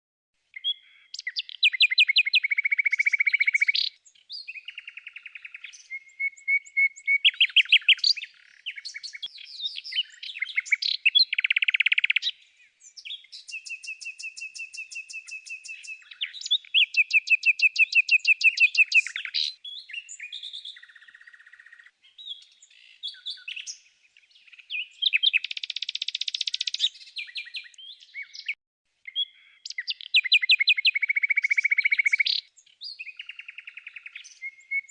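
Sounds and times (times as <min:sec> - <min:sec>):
songbird singing trills: 0:00.5 - 0:34.9.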